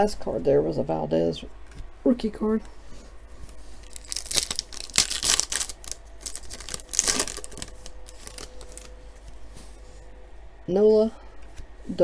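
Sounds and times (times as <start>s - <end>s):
foil wrapper tearing and crinkling: 3.8s - 9.0s.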